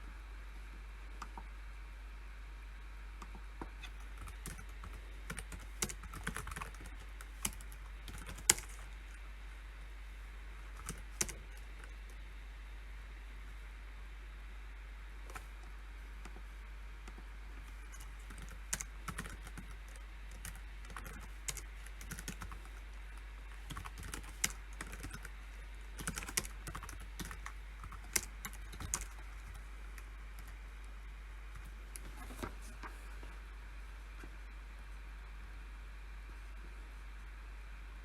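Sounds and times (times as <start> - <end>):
steady low hum: 0.0 - 38.0
typing on a computer keyboard: 3.8 - 9.0, 10.7 - 12.2, 17.8 - 30.6.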